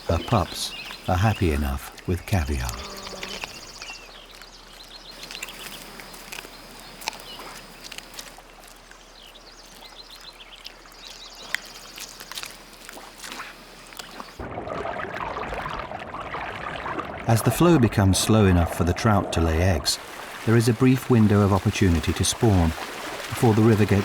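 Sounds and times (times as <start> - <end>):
faint steady hiss: 19.0 - 24.0.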